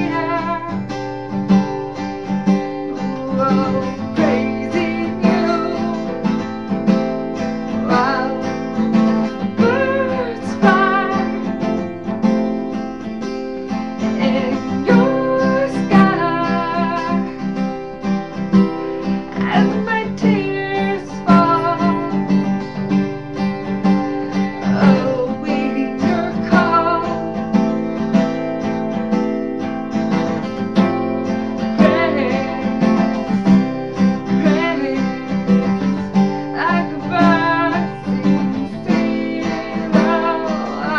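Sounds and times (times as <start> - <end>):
woman singing: 0.0 - 1.1, 2.9 - 12.0, 14.0 - 17.6, 19.3 - 23.0, 24.2 - 27.7, 31.6 - 40.9
acoustic guitar strumming: 0.0 - 40.9.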